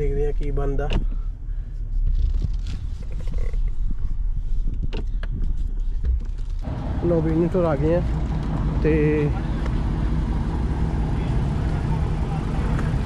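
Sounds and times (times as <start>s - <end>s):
car engine idling: 6.6s - 13.0s.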